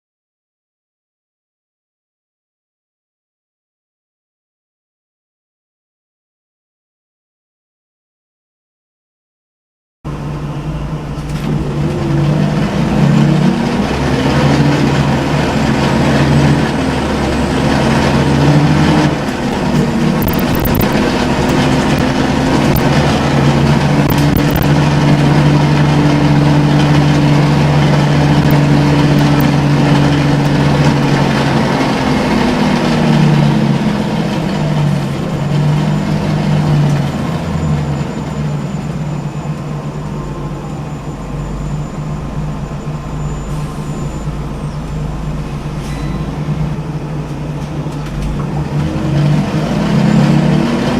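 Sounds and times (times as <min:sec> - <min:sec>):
bus engine running: 0:10.1 - 0:50.9.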